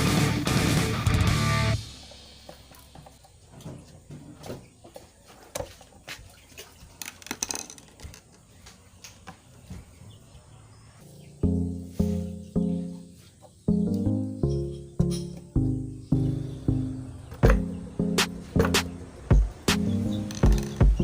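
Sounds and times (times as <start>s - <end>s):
loud music: 0.0s - 2.2s, 15.1s - 21.0s
clicks and knocks of handling: 7.0s - 9.4s.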